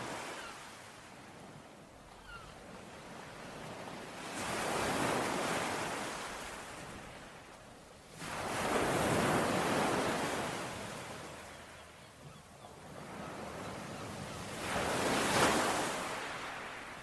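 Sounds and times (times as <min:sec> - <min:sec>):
sea waves breaking on shore: 0:00.0 - 0:17.0.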